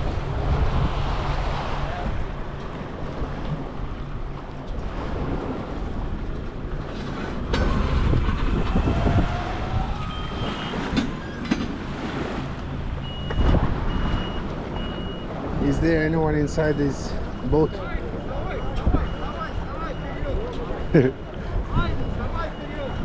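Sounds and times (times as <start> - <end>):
wind noise: 0.0 - 3.8, 7.2 - 12.3, 13.3 - 14.4
boat engine running: 0.0 - 23.0
water noise: 0.0 - 23.0.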